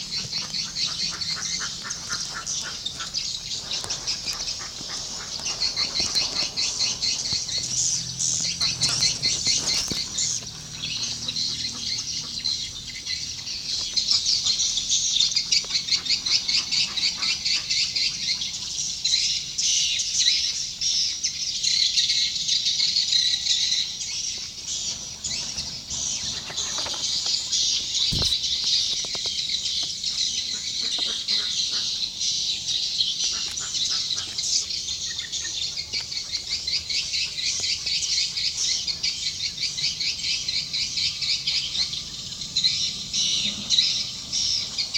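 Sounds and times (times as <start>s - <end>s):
sharp click: 28.1s - 28.4s.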